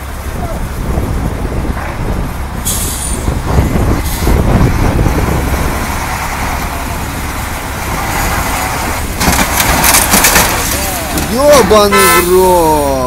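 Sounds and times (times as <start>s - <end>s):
truck engine rumbling: 0.0s - 13.0s
brief air hisses: 2.6s - 3.3s.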